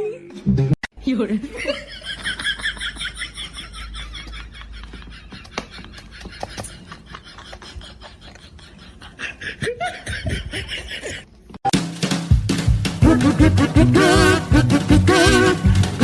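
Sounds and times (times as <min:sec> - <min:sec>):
person laughing: 0:01.4 - 0:11.4
upbeat music: 0:11.7 - 0:16.0.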